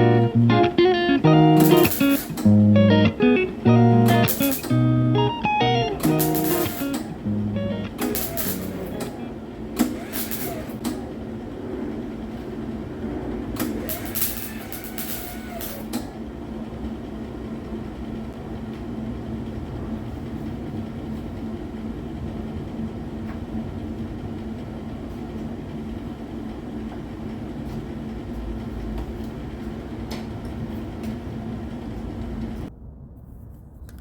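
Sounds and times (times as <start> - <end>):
rumbling noise: 0.0 - 24.9, 28.2 - 34.0
machine hum: 0.0 - 33.0.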